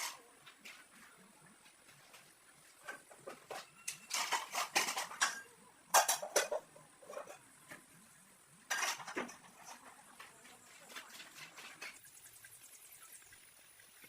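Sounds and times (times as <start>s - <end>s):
kitchenware clattering and clinking: 2.8s - 7.8s, 8.7s - 12.0s.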